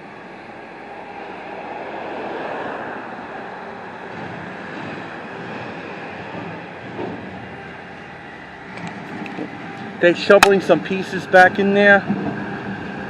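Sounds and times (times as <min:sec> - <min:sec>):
construction machinery rumbling: 0:02.8 - 0:13.0.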